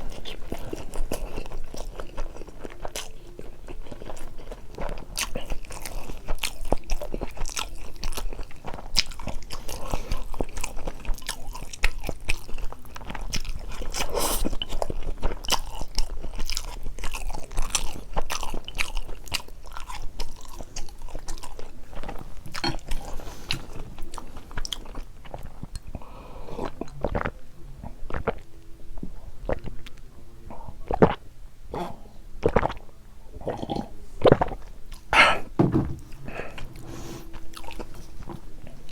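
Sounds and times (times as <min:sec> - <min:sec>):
chewing and biting noodles: 0:00.0 - 0:27.4, 0:28.1 - 0:28.4, 0:32.4 - 0:32.8, 0:36.4 - 0:38.9.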